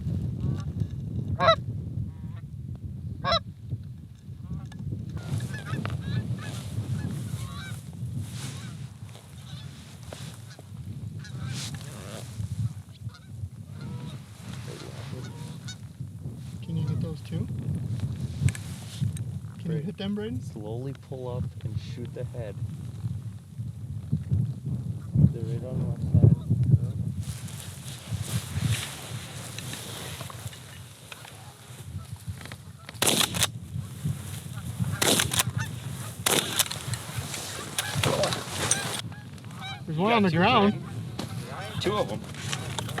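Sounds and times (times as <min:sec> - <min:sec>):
low wind rumble: 0:00.0 - 0:43.0
geese honking: 0:05.2 - 0:07.8, 0:09.4 - 0:09.7, 0:11.2 - 0:11.6, 0:13.1 - 0:15.8, 0:29.5 - 0:33.4, 0:34.8 - 0:42.9
shotgun shots: 0:33.0 - 0:33.5, 0:34.9 - 0:35.6, 0:36.2 - 0:36.9.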